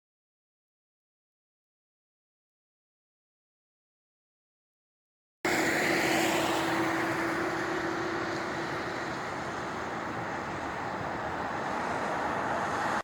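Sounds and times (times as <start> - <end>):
steady traffic hum: 5.5 - 13.0
vehicle passing on road: 5.5 - 13.0.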